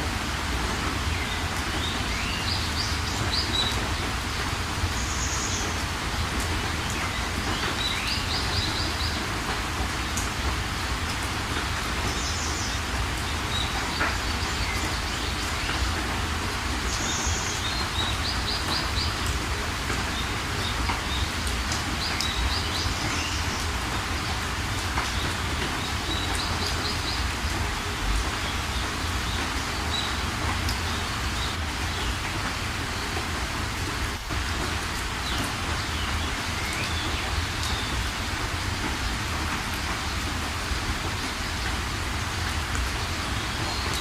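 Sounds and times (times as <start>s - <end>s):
steady rain: 0.0s - 44.0s
small birds chirping: 20.1s - 27.4s.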